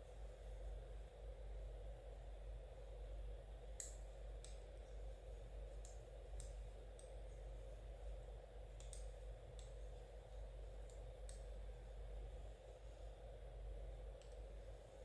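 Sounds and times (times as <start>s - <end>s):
steady low hum: 0.0s - 15.0s
knitting needles clicking: 8.8s - 9.8s.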